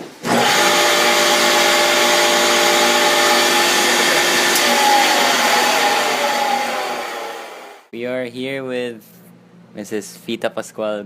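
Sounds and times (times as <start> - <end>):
electric power tool whining: 0.2 - 7.9.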